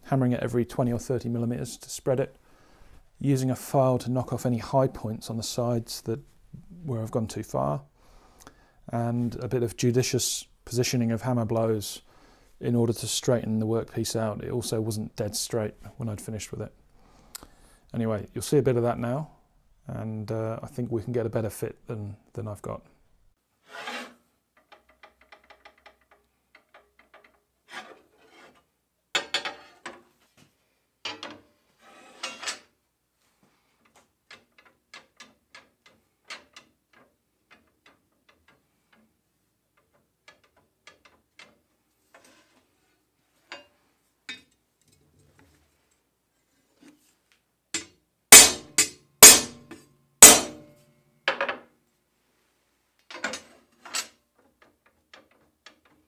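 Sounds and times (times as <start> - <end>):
scrapes on steel bar: 23.6 - 24.2, 27.7 - 28.6, 31.8 - 32.7, 48.4 - 49.6
hammer blows on steel: 48.4 - 49.6, 50.2 - 50.6.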